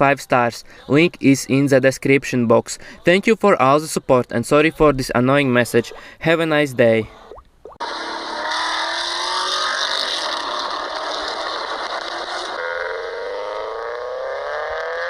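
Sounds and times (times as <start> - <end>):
car engine accelerating hard: 7.8 - 15.0.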